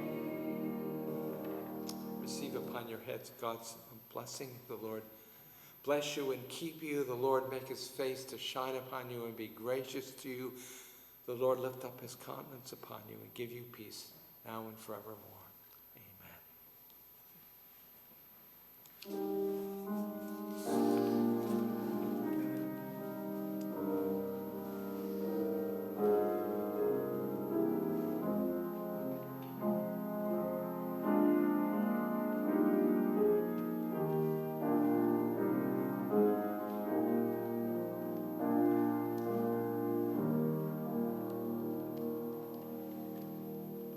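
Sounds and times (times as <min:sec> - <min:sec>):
slow keyboard chords: 0:00.0 - 0:03.0, 0:19.0 - 0:43.9.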